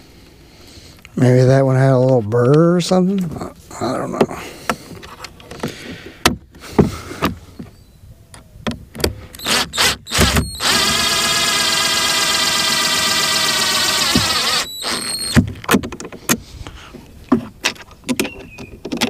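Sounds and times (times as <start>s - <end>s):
high-pitched mechanical whine: 9.4s - 15.4s.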